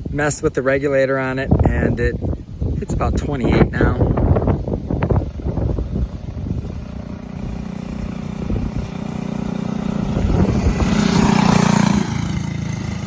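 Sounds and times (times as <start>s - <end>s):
mini bike engine running: 4.1s - 13.0s.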